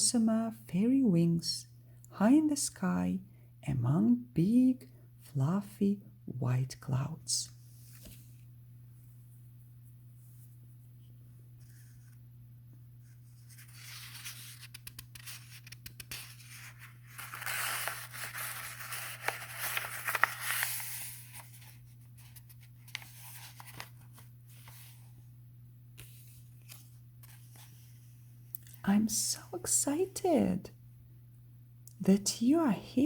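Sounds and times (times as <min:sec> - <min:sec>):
low steady hum: 0:00.0 - 0:33.0
paper rustling and scratching: 0:11.6 - 0:12.2, 0:13.0 - 0:25.1, 0:26.0 - 0:28.0.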